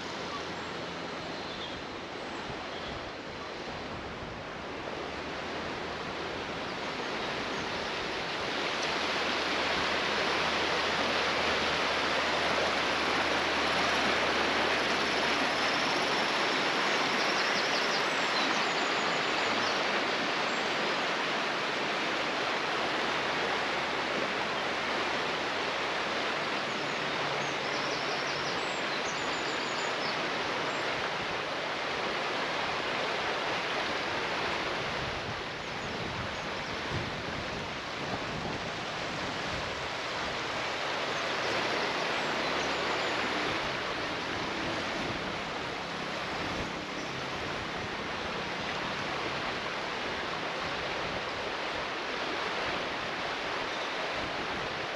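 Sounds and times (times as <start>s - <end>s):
water rushing: 0.0s - 54.9s.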